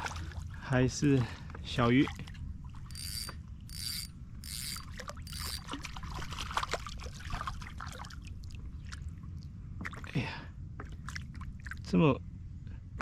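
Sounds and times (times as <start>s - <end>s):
trickling water: 2.0s - 10.2s
fishing reel whirring: 2.9s - 5.7s.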